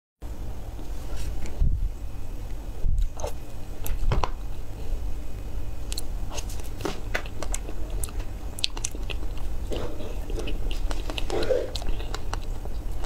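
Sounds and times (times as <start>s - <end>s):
person chewing food: 3.0s - 4.0s, 5.8s - 13.0s.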